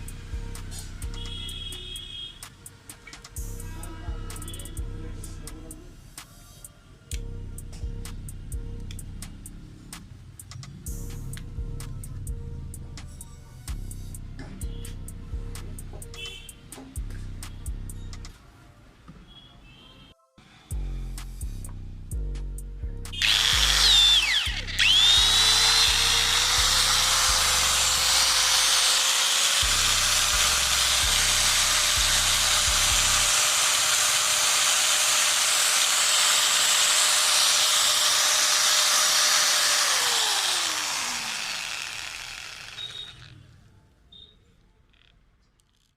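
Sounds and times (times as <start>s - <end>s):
angle grinder whine: 23.2s - 43.6s.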